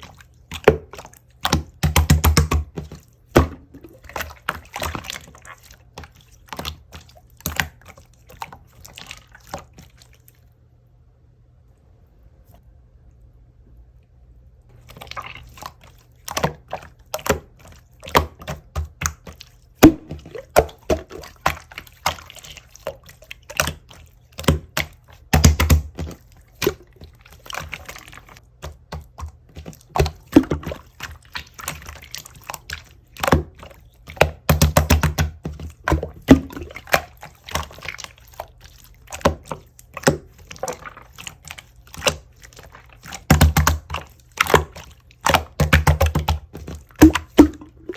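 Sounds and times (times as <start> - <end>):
slime squished by hand: 14.8 - 47.9.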